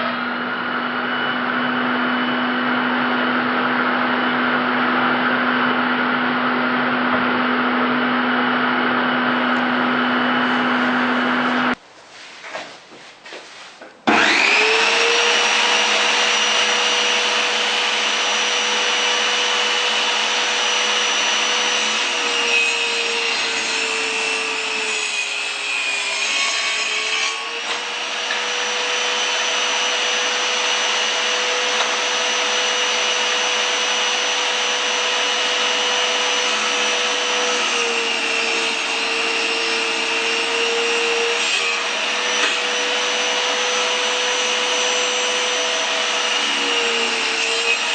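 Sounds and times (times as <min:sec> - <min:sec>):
power tool motor whining: 0:14.1 - 0:22.5, 0:27.5 - 0:47.9.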